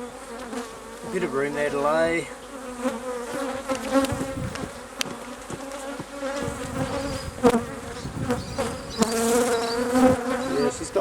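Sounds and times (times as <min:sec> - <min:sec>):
bees buzzing: 0:00.0 - 0:11.0
hive frames knocking and clicking: 0:02.8 - 0:10.4.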